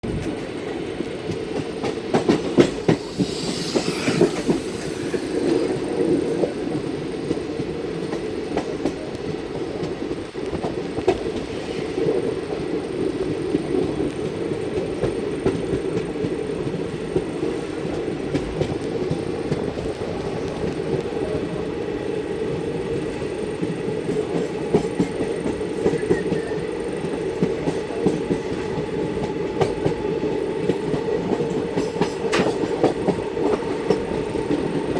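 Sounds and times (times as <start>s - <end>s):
train wheels rumbling on rails: 0.0s - 34.9s
rushing hiss: 2.7s - 5.9s.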